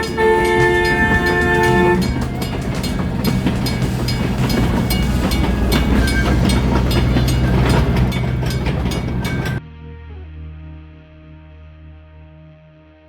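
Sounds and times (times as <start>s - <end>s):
train running on rails: 0.0s - 9.6s
wheels clicking and knocking: 0.0s - 9.6s.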